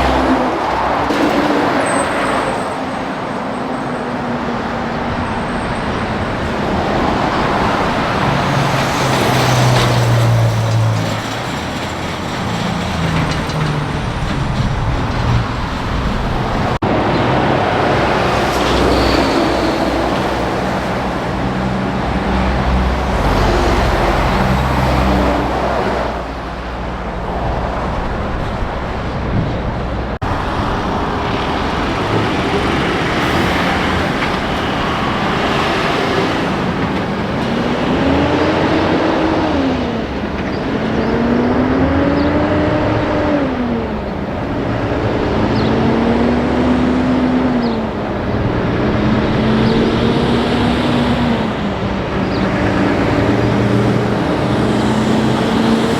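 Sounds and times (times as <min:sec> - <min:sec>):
truck diesel engines: 0:00.0 - 0:55.9
tyre noise on highway: 0:00.0 - 0:55.9
truck shifting up through gears: 0:05.4 - 0:26.2.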